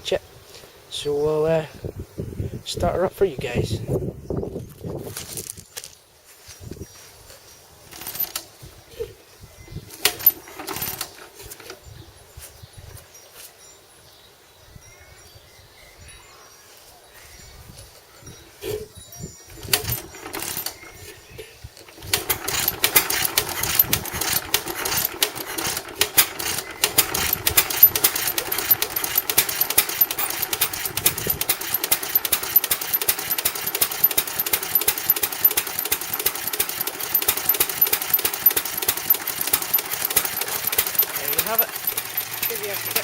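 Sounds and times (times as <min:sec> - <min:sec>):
stationary engine knocking and clattering: 0:10.0 - 0:11.3, 0:19.6 - 0:20.8, 0:21.9 - 0:43.0.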